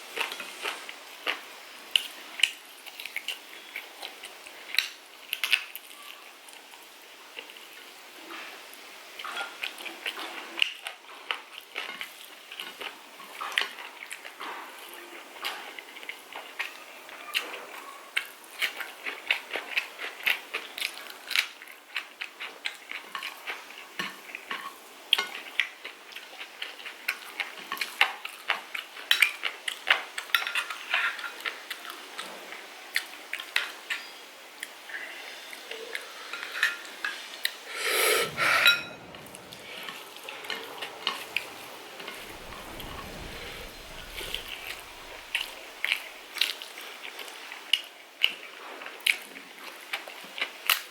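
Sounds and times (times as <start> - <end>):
loud burst of noise: 37.6 - 46.4
plate and cutlery clinking: 38.2 - 39.5.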